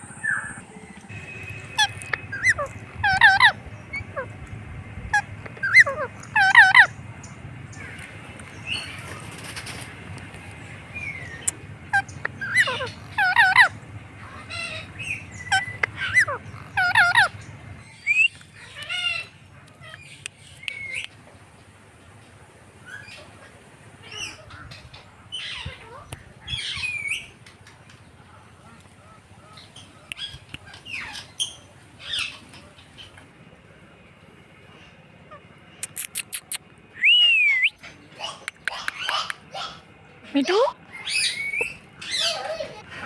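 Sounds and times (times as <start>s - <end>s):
parrot squawking: 1.6s - 4.4s, 5.1s - 7.0s, 11.0s - 21.0s, 35.3s - 43.0s.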